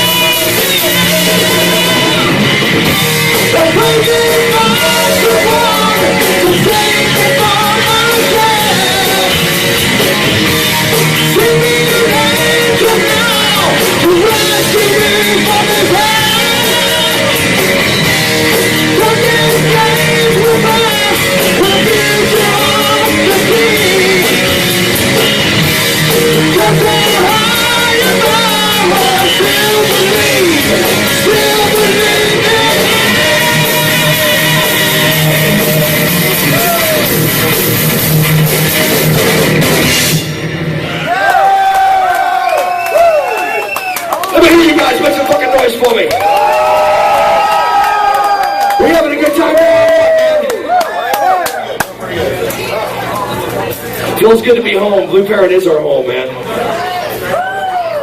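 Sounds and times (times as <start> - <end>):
person singing: 0.0 - 2.6, 3.2 - 9.9, 11.1 - 17.8, 18.5 - 24.7, 26.1 - 37.2
live metal band playing: 0.0 - 42.0.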